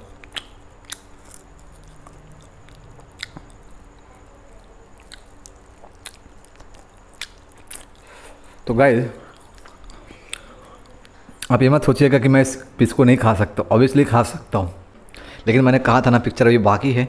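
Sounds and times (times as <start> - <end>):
person chewing: 0.0 - 8.6, 9.2 - 11.5
wet mouth clicks and smacks: 0.2 - 3.9, 4.6 - 8.1.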